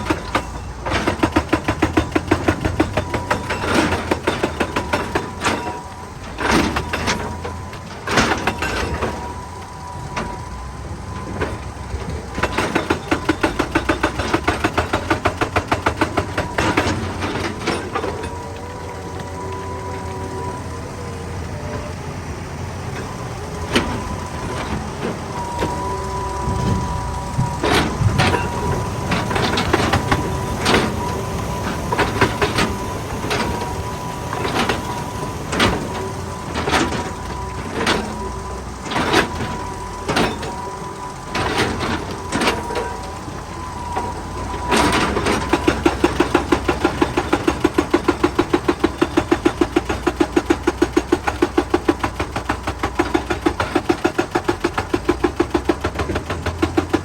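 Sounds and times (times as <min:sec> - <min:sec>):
clanks of rock and steel: 0:00.0 - 0:20.8, 0:23.0 - 0:57.0
hydraulic rock breaker hammering: 0:00.0 - 0:22.0, 0:22.7 - 0:57.0
excavator diesel engine: 0:00.0 - 0:57.0.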